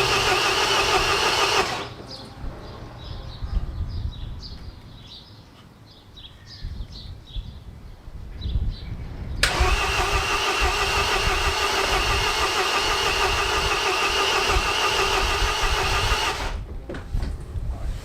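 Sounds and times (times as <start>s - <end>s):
starter motor cranking engine: 0.0s - 2.0s, 9.4s - 16.6s.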